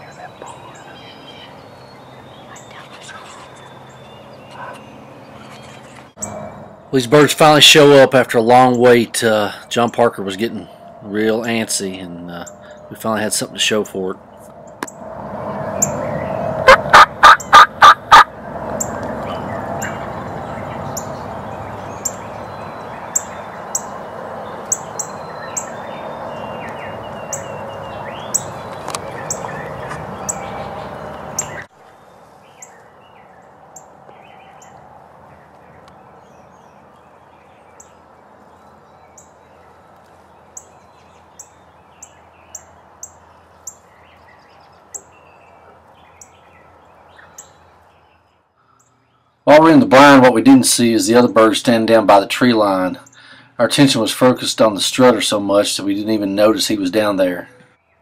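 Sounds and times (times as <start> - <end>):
songbird chirps: 0.0 - 58.0
turkey gobbling: 16.6 - 18.3.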